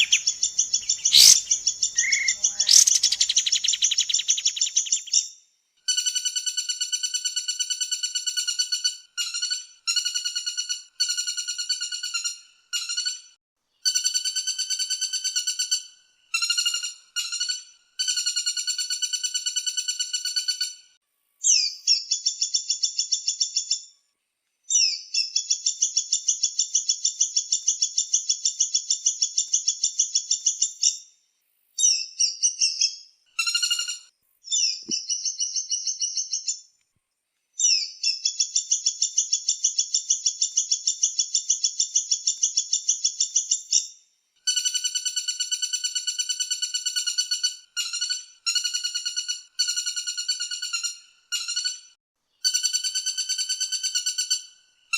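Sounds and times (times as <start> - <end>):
lower-pitched bird rattle: 0.0 - 4.7
woodpecker trills: 0.0 - 5.2.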